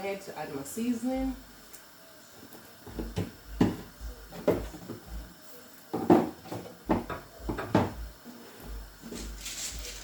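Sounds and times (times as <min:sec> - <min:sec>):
kitchen containers knocking on counter: 0:03.0 - 0:05.0, 0:05.9 - 0:08.1.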